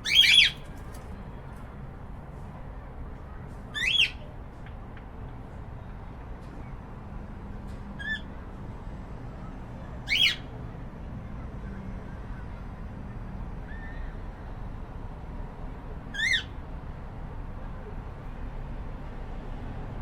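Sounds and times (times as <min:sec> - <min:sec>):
cockatiel calls: 0:00.0 - 0:00.6, 0:03.7 - 0:04.2, 0:10.1 - 0:10.4, 0:16.1 - 0:16.5.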